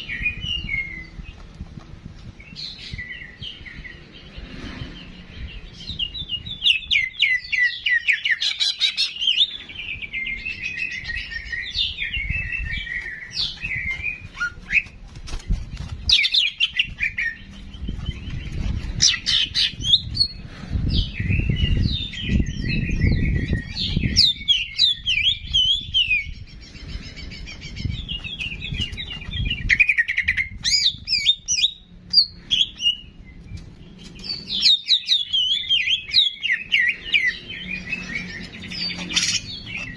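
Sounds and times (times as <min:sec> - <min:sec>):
low rumbling noise: 0:00.0 - 0:06.9.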